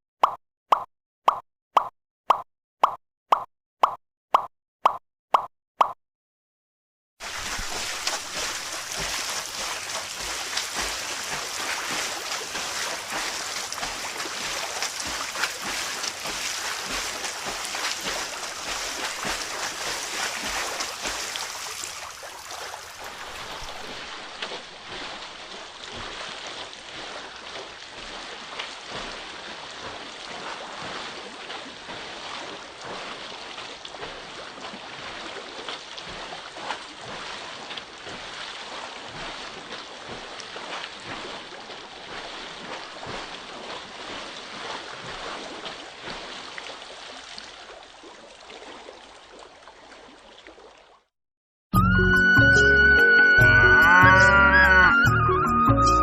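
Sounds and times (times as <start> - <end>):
water running and splashing: 7.2 - 51.1.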